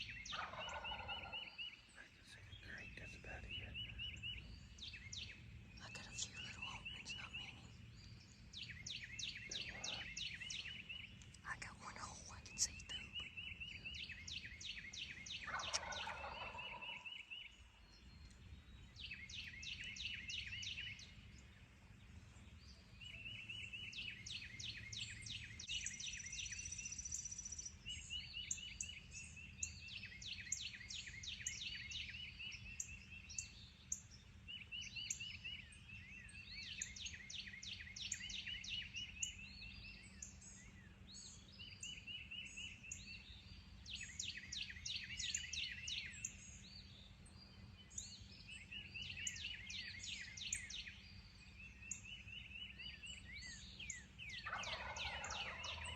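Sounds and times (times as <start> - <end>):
songbirds chirping and trilling: 0.0 - 55.9
turkey gobbling: 0.3 - 1.5, 15.4 - 17.0, 54.4 - 55.9.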